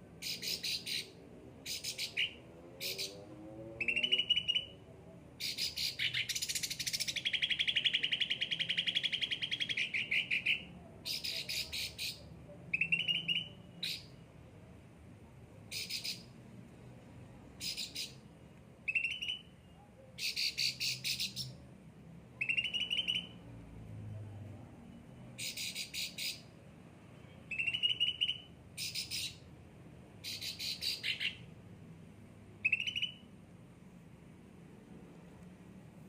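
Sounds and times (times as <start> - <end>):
songbird singing high notes: 12.8 - 14.1, 18.9 - 19.5, 22.4 - 23.4, 27.5 - 29.4, 32.6 - 33.3.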